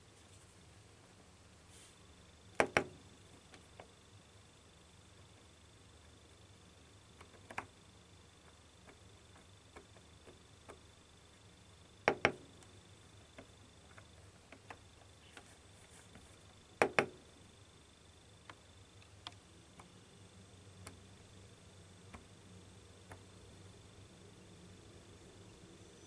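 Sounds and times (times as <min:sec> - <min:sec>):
faint high-pitched whine: 0:00.0 - 0:26.0
small clicks and taps: 0:07.2 - 0:07.8, 0:08.4 - 0:10.9, 0:12.0 - 0:12.7, 0:13.3 - 0:15.5, 0:16.1 - 0:17.2, 0:18.4 - 0:20.0, 0:23.0 - 0:23.3.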